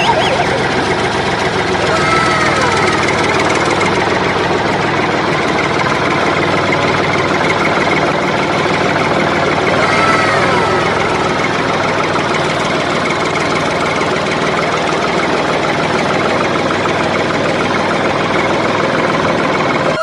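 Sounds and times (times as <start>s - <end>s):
falling tones: 0.0s - 3.8s, 9.7s - 11.9s
engine running: 0.0s - 20.0s.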